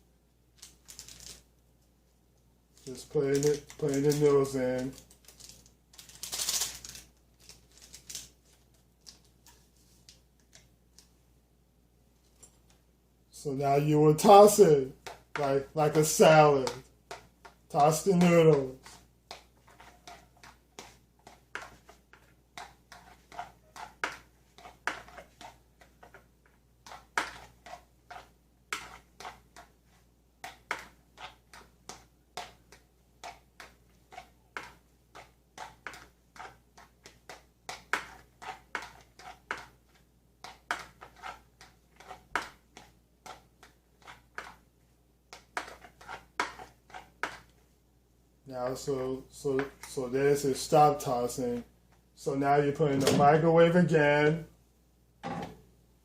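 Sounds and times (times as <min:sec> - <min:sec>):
fork scraping bowl: 0:17.9 - 0:26.2, 0:26.8 - 0:29.8, 0:30.4 - 0:44.6, 0:45.3 - 0:47.5.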